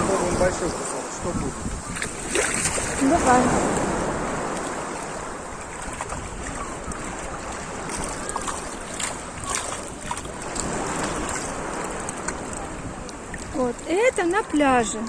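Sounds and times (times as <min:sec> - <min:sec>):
sea water washing at shoreline: 0:00.0 - 0:15.0
wind on microphone: 0:00.0 - 0:15.0.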